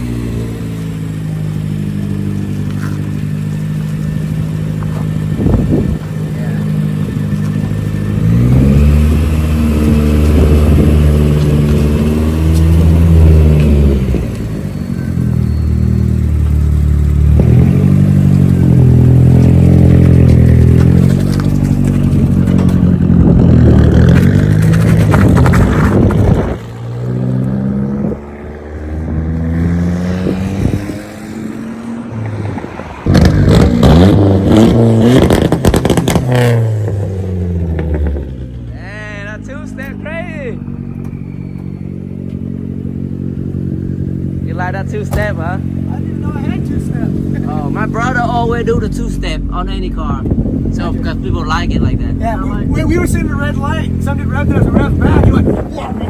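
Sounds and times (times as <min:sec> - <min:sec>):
pickup engine revving: 0:00.0 - 0:56.0
sharp exhaust pops: 0:17.3 - 0:28.2, 0:32.2 - 0:38.7, 0:44.5 - 0:55.7.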